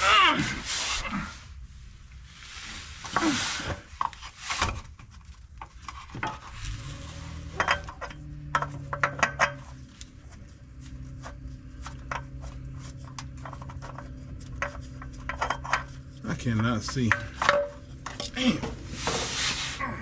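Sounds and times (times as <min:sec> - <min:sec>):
rustling: 0:00.5 - 0:20.0
metal clinks and scrapes: 0:03.0 - 0:19.8
steady low hum: 0:04.9 - 0:20.0.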